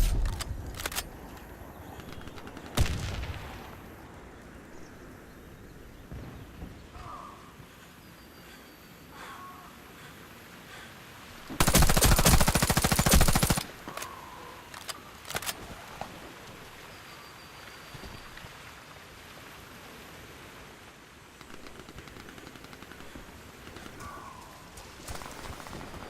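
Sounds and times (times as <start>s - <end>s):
suppressed rifle automatic burst: 11.6s - 13.6s.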